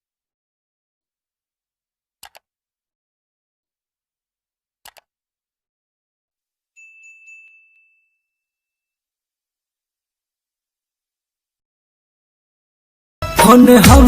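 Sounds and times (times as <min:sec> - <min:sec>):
bright high ding: 0:06.8 - 0:08.4.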